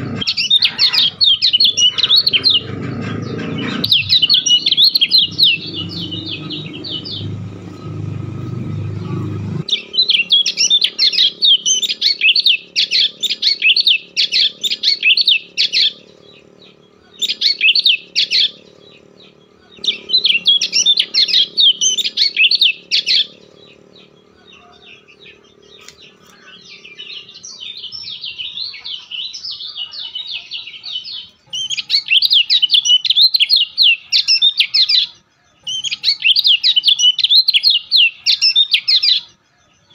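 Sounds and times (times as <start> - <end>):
low rumbling noise: 0.0 - 28.7
bird chirping and twittering: 0.0 - 39.9.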